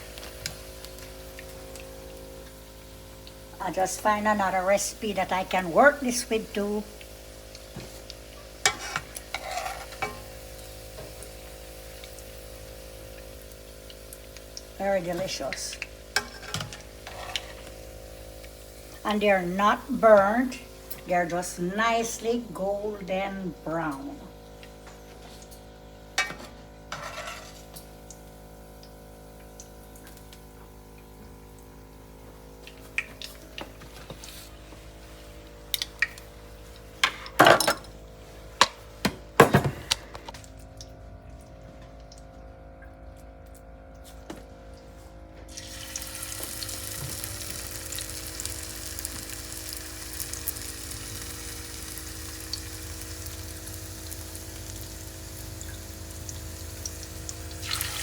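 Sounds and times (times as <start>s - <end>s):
hot oil sizzling: 0.0s - 33.4s, 45.5s - 58.0s.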